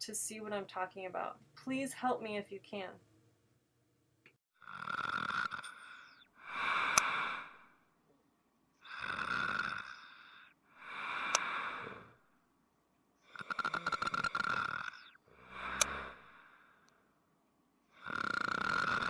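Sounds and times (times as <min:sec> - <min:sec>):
person snoring: 0:04.6 - 0:07.8, 0:08.8 - 0:12.2, 0:13.2 - 0:16.9, 0:17.9 - 0:19.0
sharp click in snores: 0:05.3 - 0:05.8, 0:06.8 - 0:07.2, 0:11.2 - 0:11.8, 0:13.4 - 0:15.0, 0:15.6 - 0:16.2.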